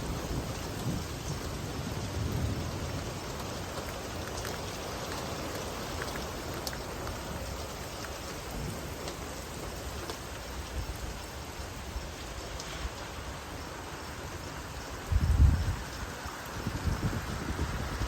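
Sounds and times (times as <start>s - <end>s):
low thunder rumble: 0.0s - 6.6s, 15.0s - 18.0s
steady rain: 0.0s - 18.0s
drops ticking on a surface: 3.4s - 9.2s.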